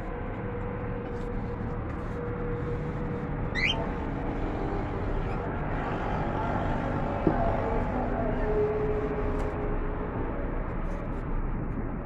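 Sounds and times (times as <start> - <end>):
bird chirp sweeping upward: 3.6 - 3.8.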